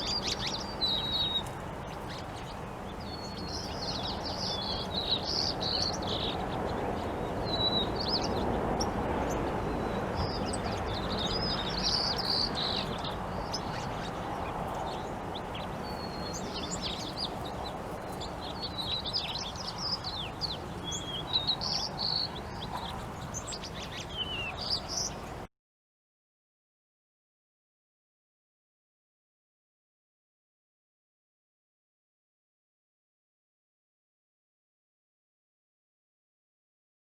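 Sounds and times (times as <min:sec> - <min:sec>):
songbirds chirping and trilling: 0:00.0 - 0:25.5.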